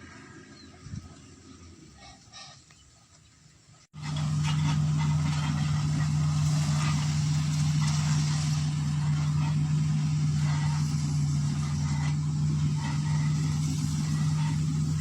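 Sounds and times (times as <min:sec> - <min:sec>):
motor humming: 0:04.0 - 0:15.0.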